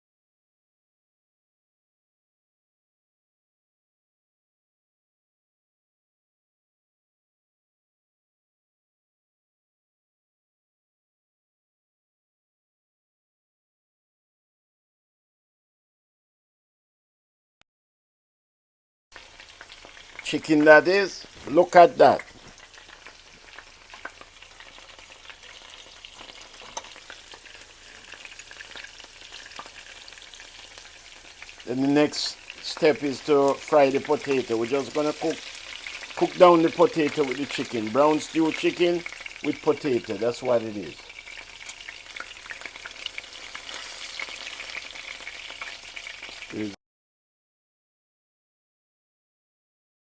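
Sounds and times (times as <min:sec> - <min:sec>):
chicken sizzling in hot oil: 0:19.2 - 0:46.8.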